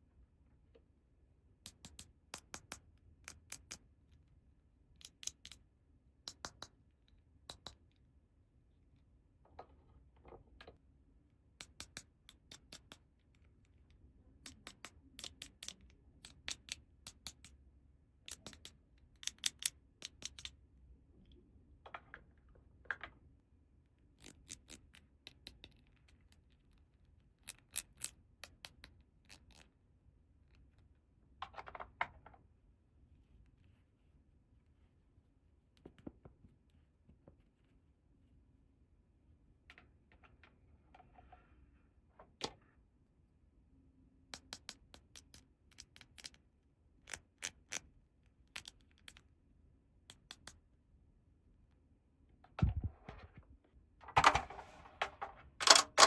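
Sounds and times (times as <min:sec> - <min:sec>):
plastic toy pieces clicking: 0:05.0 - 0:05.6, 0:14.4 - 0:17.6, 0:18.3 - 0:20.6, 0:24.2 - 0:26.0, 0:27.4 - 0:29.7, 0:48.5 - 0:49.2, 0:55.0 - 0:56.0.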